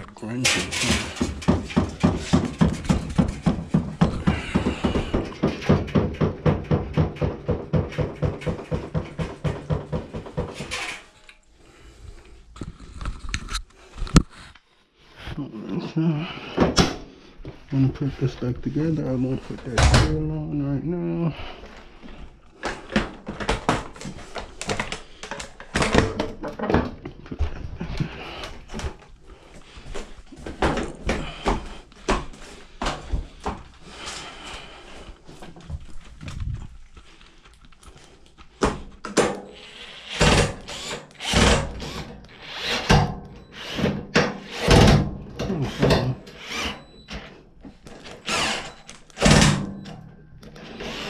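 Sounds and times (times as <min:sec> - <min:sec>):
machine parts knocking and clicking: 0:00.4 - 0:11.0.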